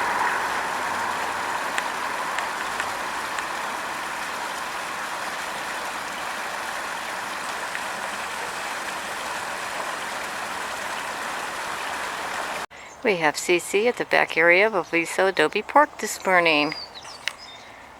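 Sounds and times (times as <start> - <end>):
small waterfall rushing: 0.0 - 12.7.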